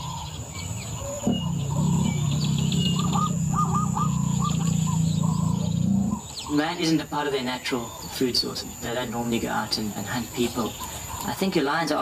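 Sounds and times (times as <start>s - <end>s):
birds chirping: 0.0s - 12.0s
steady low rumble: 0.3s - 6.4s.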